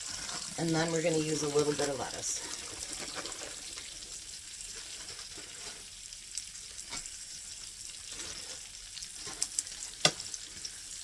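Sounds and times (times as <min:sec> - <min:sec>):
food sizzling on a griddle: 0:00.0 - 0:11.0.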